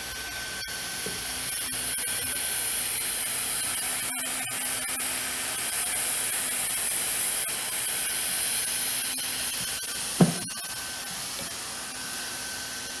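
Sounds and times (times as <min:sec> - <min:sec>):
hot air blower hissing: 0:00.0 - 0:13.0
short thump: 0:10.2 - 0:10.5.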